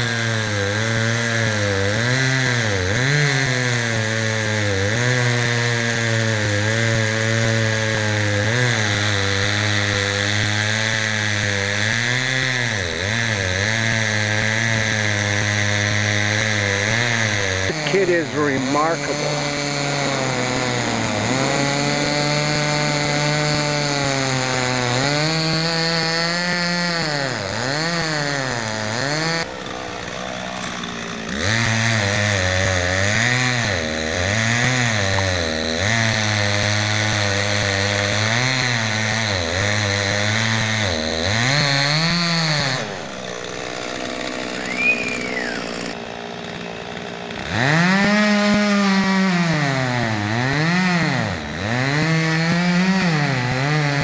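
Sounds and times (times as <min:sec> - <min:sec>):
chainsaw cutting: 0:00.0 - 0:54.0.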